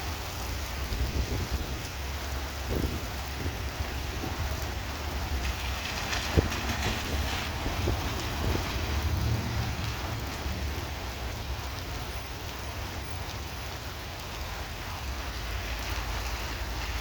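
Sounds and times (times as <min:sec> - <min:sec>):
heavy rain falling: 0:00.0 - 0:17.0
raindrops ticking on a surface: 0:00.0 - 0:17.0.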